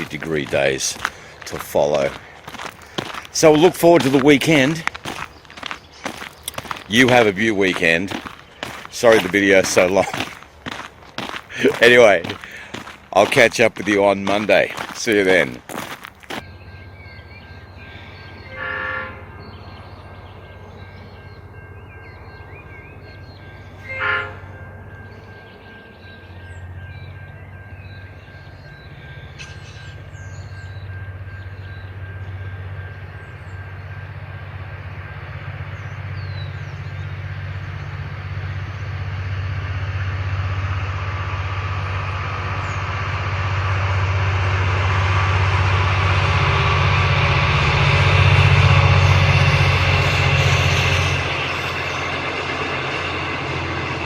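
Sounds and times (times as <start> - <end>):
train rumble: 0.0 - 54.0
train horn blasts: 17.8 - 19.4, 23.8 - 25.4, 43.0 - 53.5.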